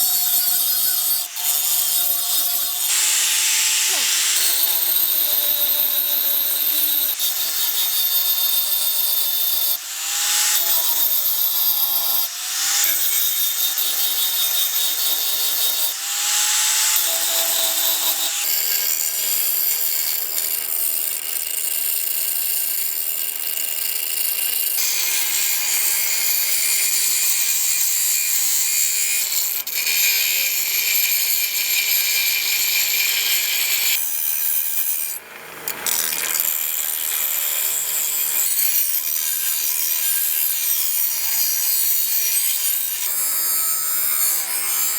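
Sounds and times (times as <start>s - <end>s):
power tool motor running: 0.0s - 28.6s.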